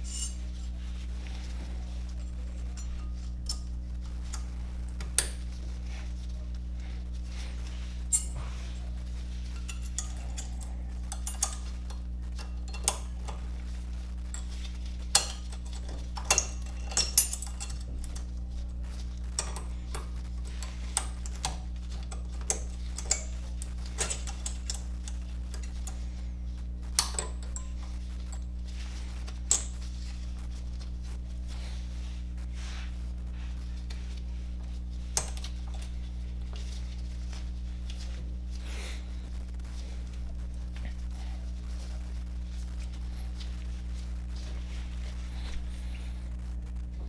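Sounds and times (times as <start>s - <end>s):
metal tools clinking: 0.0s - 26.2s, 26.8s - 30.9s, 35.0s - 38.2s
steady low hum: 0.0s - 47.0s.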